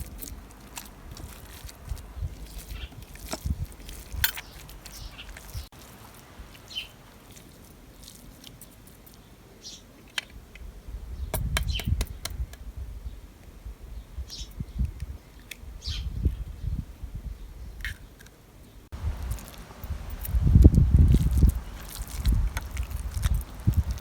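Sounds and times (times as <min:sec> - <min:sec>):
birds chirping: 0:00.0 - 0:10.4, 0:13.9 - 0:16.8.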